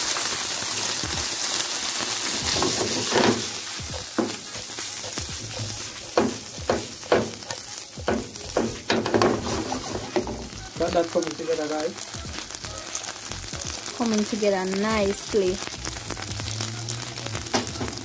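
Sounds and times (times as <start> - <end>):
food sizzling in a frying pan: 0.0 - 18.0
stirring knocks and scrapes in pan: 2.4 - 10.5.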